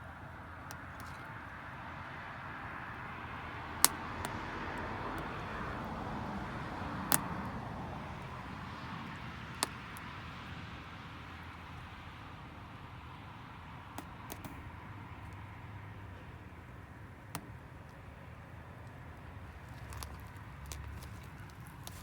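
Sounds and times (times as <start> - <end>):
passing vehicle rush: 2.0 - 11.2
campfire crackling and popping: 2.6 - 12.0, 16.6 - 22.0.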